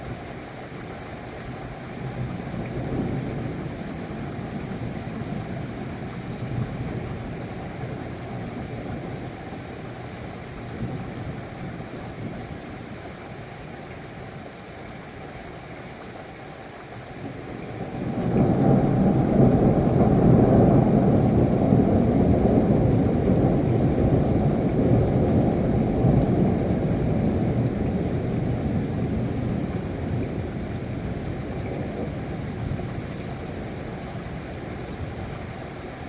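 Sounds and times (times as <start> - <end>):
steady rain: 0.0 - 36.0
thunder rumbling: 17.8 - 35.3.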